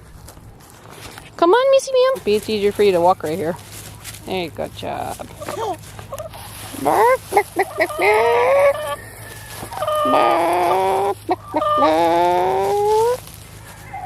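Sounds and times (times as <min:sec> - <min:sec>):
chickens clucking and calling: 0:05.2 - 0:14.0.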